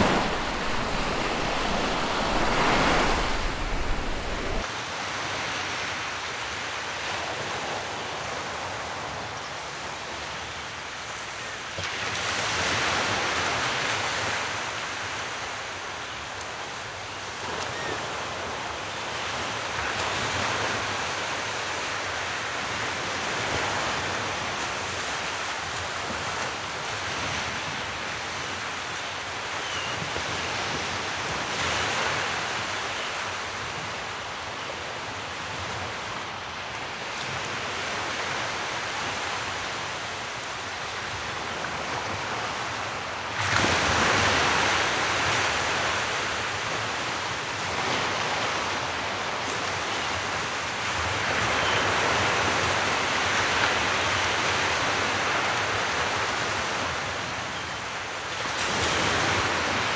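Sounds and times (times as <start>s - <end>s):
sea waves washing onto shore: 0.0s - 4.6s, 30.2s - 57.4s.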